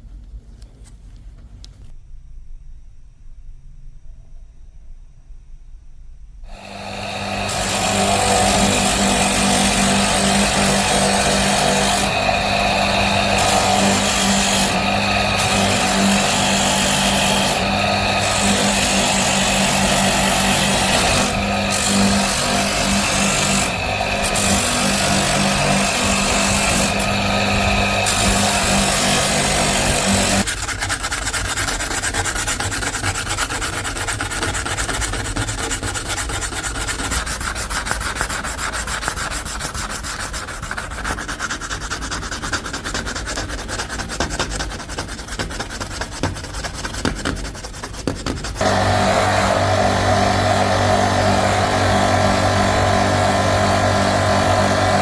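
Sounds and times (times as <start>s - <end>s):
power sander motor humming: 6.5s - 30.5s, 48.6s - 55.0s
rapid rubbing: 6.5s - 55.0s
rasping sanding noise: 6.5s - 55.0s.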